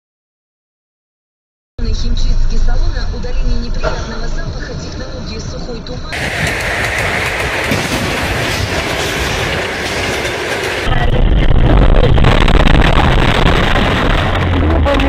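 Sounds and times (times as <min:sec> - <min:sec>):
passenger train rumbling past: 0:02.0 - 0:15.0
rattling clatter: 0:06.2 - 0:10.9.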